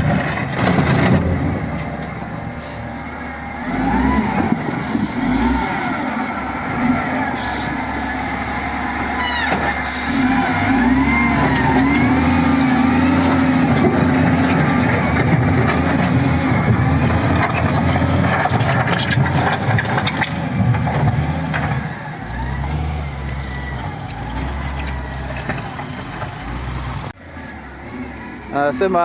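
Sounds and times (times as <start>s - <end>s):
bulldozer diesel engine: 0.0s - 29.0s
high wavering squeals: 9.1s - 12.2s.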